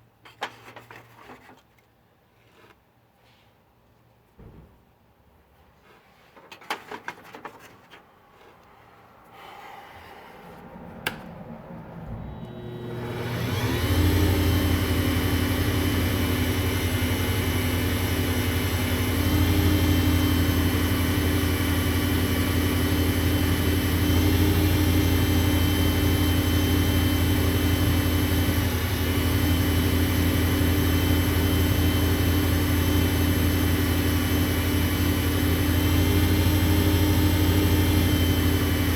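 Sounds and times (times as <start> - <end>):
wood lathe motor humming and whining: 12.0 - 38.9.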